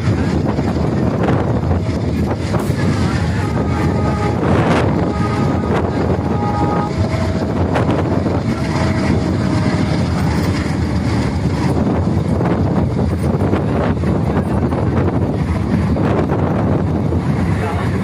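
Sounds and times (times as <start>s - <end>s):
train coach rumbling: 0.0s - 18.0s
wind buffeting microphone: 0.0s - 18.0s.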